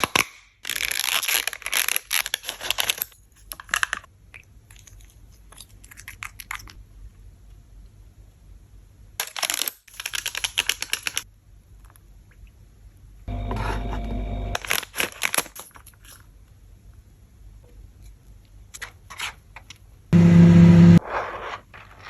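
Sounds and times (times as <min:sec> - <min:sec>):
plastic toy pieces clicking: 0:09.2 - 0:11.3.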